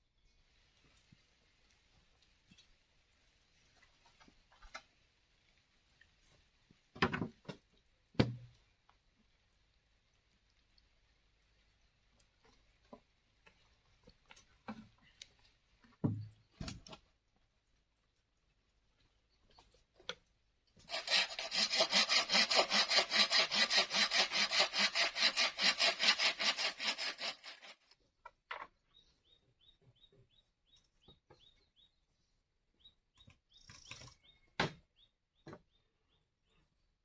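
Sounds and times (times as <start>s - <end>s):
hand saw cutting wood: 20.8s - 28.0s.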